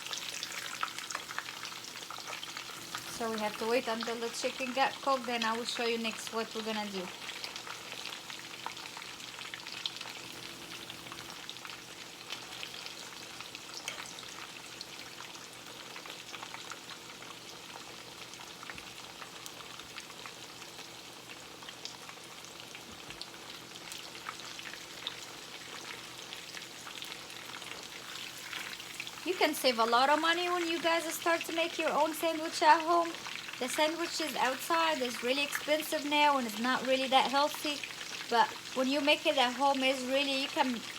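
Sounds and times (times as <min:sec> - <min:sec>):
oil crackles and pops: 0:00.0 - 0:05.0, 0:21.2 - 0:36.4
chicken sizzling in oil: 0:00.0 - 0:40.9.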